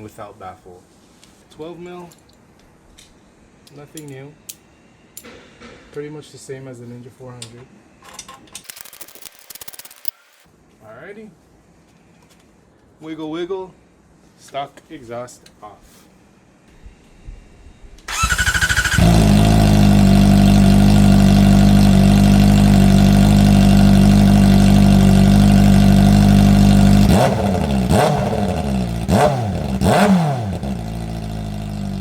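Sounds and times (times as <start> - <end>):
motorcycle starter cranking: 18.1 - 19.8
motorcycle engine idling: 18.1 - 32.0
motorcycle engine revving: 18.1 - 32.0.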